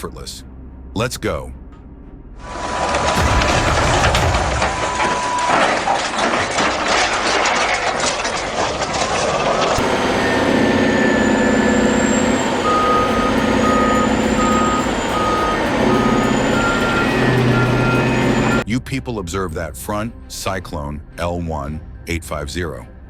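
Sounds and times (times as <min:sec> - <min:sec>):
diesel engine running: 0:02.4 - 0:18.6
heavy machinery clattering: 0:02.4 - 0:18.6
reversing alarm beeping: 0:03.4 - 0:06.9, 0:09.8 - 0:18.6
high-pitched beep: 0:10.4 - 0:18.6.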